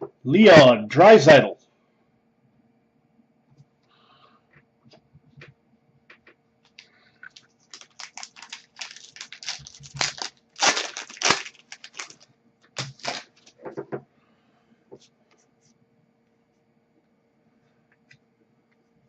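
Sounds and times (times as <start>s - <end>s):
foil wrapper crinkling and tearing: 6.7s - 13.6s.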